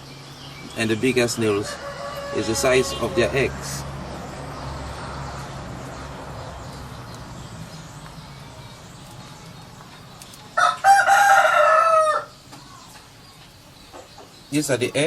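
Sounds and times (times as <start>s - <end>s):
rooster crowing: 1.5s - 3.9s, 10.6s - 12.4s.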